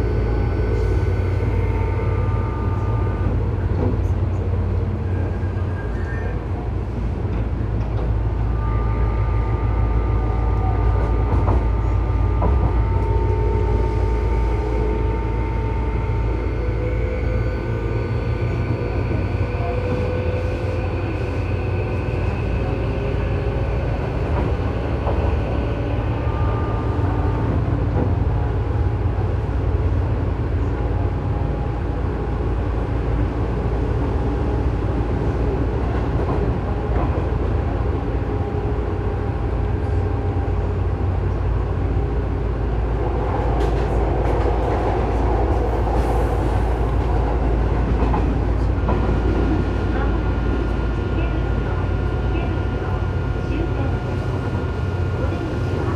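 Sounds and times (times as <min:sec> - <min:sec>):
thin whining tones: 0:00.0 - 0:04.1, 0:08.7 - 0:28.6, 0:50.9 - 0:55.9
train wheels and motors rumbling: 0:00.0 - 0:55.9.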